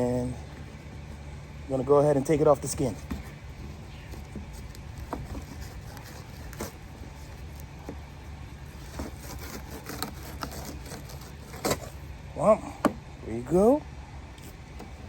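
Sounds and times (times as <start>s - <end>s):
low steady hum: 0.0s - 15.0s
knife scraping fish skin: 2.9s - 12.0s.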